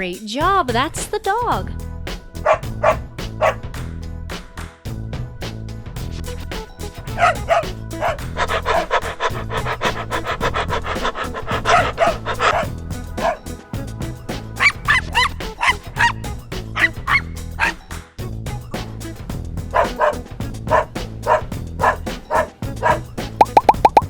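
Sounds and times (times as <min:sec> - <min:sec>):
background music: 0:00.0 - 0:24.0
dog barking: 0:02.5 - 0:03.6, 0:07.2 - 0:13.4, 0:16.8 - 0:17.8, 0:19.7 - 0:23.0.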